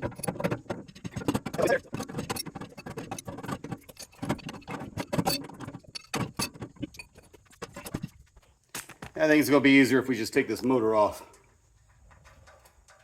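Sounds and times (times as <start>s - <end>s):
metal tools clinking and knocking: 0.0s - 8.2s.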